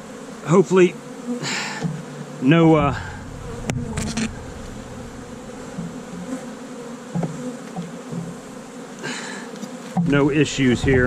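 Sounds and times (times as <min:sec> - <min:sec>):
bees buzzing: 0:00.0 - 0:11.0
short low knocks: 0:02.7 - 0:06.4, 0:10.0 - 0:11.0.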